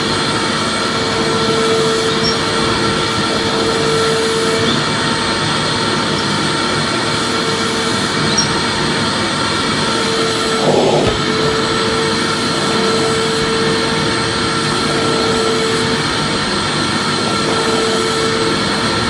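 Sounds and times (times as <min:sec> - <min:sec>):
vacuum cleaner running: 0:00.0 - 0:19.0
steady hum: 0:10.1 - 0:12.0.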